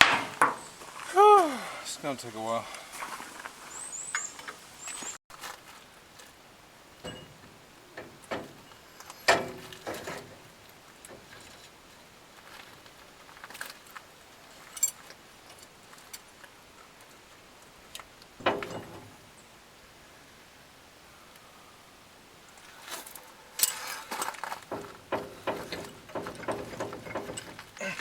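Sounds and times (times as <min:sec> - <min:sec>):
metal tools clinking: 0:22.8 - 0:28.0.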